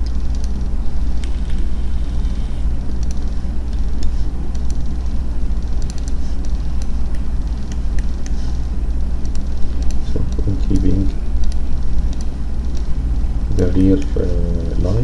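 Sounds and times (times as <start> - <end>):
computer mouse clicks: 0.0 - 0.6, 3.0 - 4.9, 5.6 - 8.4, 9.2 - 12.9
low background rumble: 0.0 - 15.0.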